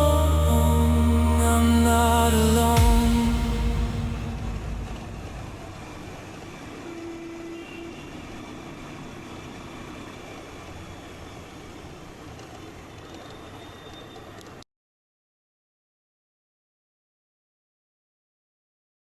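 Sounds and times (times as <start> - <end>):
steady tone: 0.0 - 7.6.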